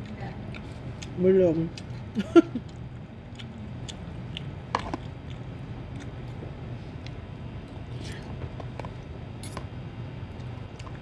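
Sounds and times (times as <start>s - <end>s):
person chewing noodles: 0.0s - 8.4s
low room hum: 0.0s - 11.0s.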